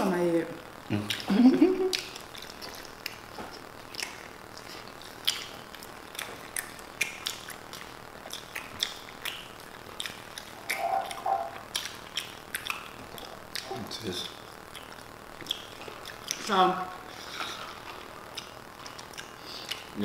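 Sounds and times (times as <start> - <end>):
people chewing food: 0.9 - 20.0
lip smacks: 1.9 - 13.8, 14.7 - 16.4, 17.7 - 19.9.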